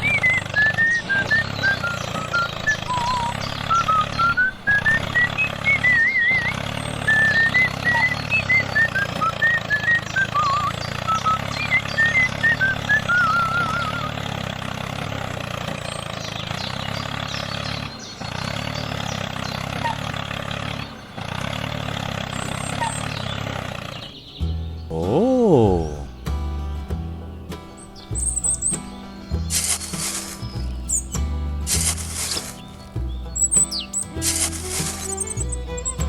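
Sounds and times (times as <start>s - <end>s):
high whistle-like tune: 0.0s - 14.2s
toy motor buzzing: 29.5s - 30.6s, 31.7s - 32.6s, 33.6s - 36.0s.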